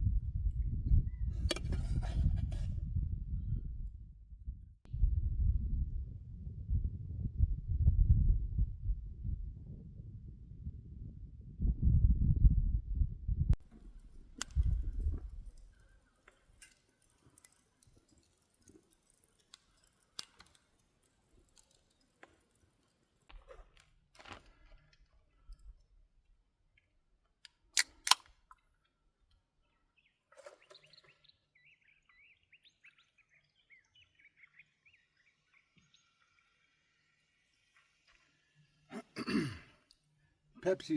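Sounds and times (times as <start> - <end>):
small clicks: 13.6 - 25.7, 26.8 - 29.4
bird chirping: 29.6 - 37.7.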